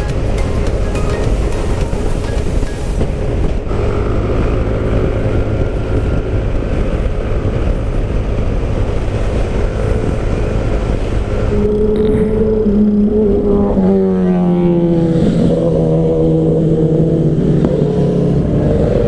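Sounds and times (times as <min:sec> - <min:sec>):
motorcycle engine running: 0:00.0 - 0:13.4
wind buffeting microphone: 0:00.0 - 0:19.0.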